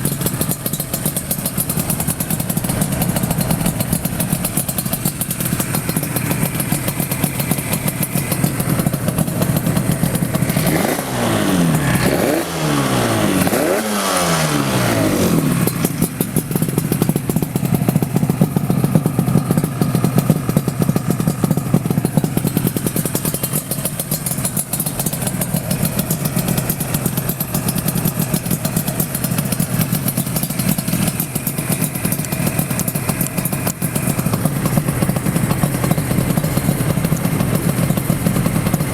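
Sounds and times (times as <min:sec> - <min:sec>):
two-stroke motorcycle engine revving: 0:00.0 - 0:38.9.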